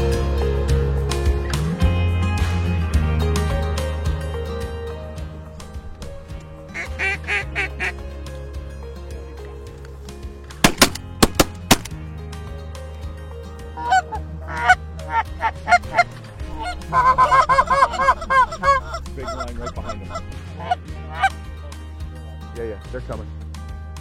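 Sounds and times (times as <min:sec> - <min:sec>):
geese honking: 0:06.7 - 0:08.0, 0:13.8 - 0:21.4
sharp loud cracks: 0:10.6 - 0:12.0.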